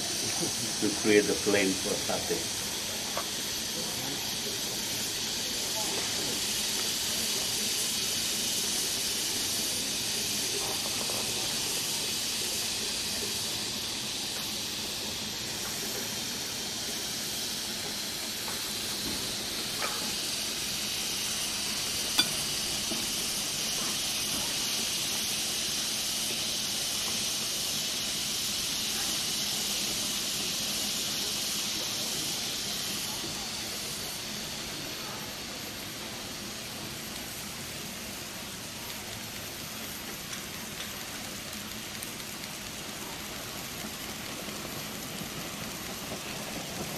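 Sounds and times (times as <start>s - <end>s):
meat sizzling on a grill: 0.0s - 46.9s
sharp pops from grill: 19.8s - 20.2s, 22.1s - 23.2s.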